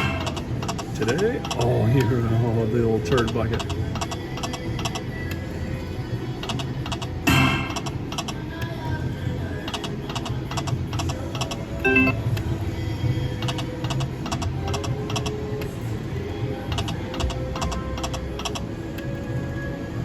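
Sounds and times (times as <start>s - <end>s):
slot machine reels clicking: 0.0s - 2.1s, 6.4s - 8.7s, 16.7s - 19.1s
slot machine game music: 0.0s - 3.6s, 6.9s - 8.2s, 11.8s - 12.3s
low casino hum: 0.0s - 20.0s.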